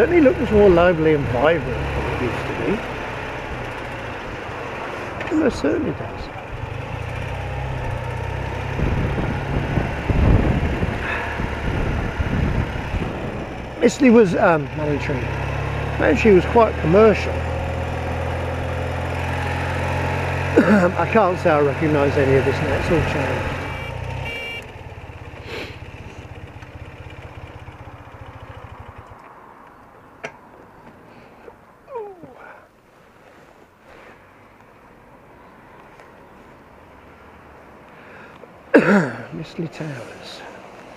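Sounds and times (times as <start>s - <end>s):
motorcycle engine running: 6.3s - 29.2s
motorcycle engine idling: 23.6s - 30.0s.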